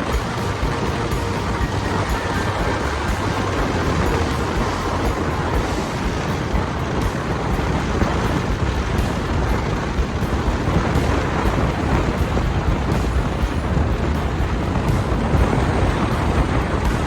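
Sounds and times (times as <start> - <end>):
deep road rumble: 0.0 - 17.0
tyres hissing on wet road: 0.0 - 17.0.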